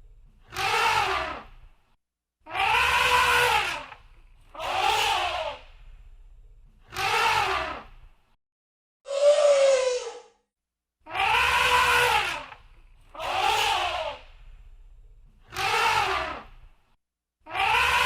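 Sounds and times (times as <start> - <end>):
elephant trumpeting: 0.5 - 1.4, 2.5 - 3.9, 11.1 - 12.6, 17.5 - 18.0.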